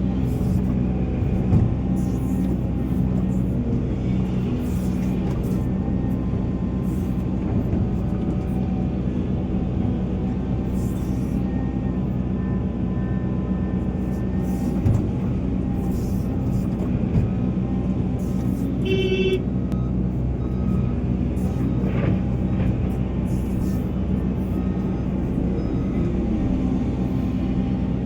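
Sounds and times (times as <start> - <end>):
excavator diesel engine running: 0.0 - 28.0
short thump: 1.2 - 1.8.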